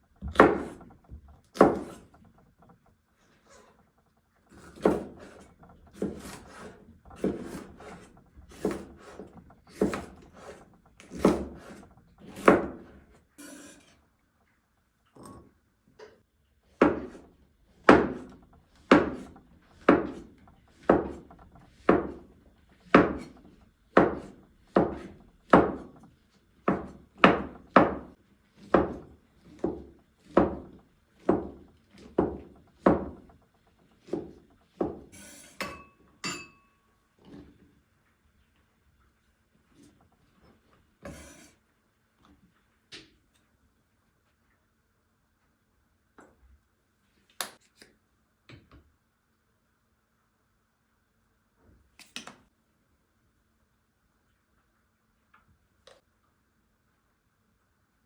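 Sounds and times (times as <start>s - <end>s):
knife cutting on wooden board: 1.6s - 2.1s, 4.5s - 13.9s, 41.0s - 41.6s.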